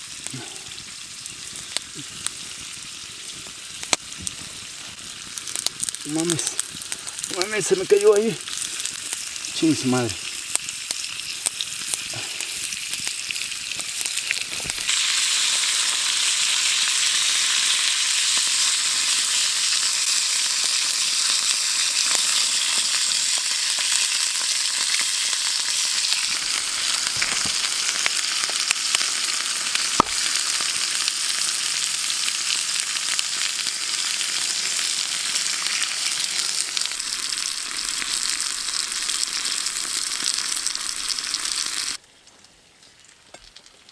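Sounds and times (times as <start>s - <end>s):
meat sizzling in a pan: 0.0s - 42.0s.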